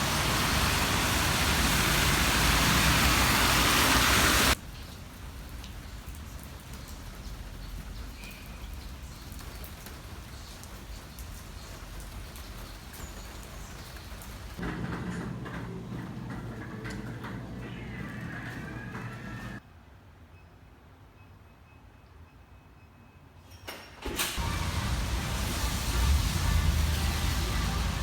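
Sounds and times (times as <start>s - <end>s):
loud rushing hiss: 0.0s - 4.6s, 24.4s - 28.0s
rain falling: 0.0s - 19.6s, 24.4s - 28.0s.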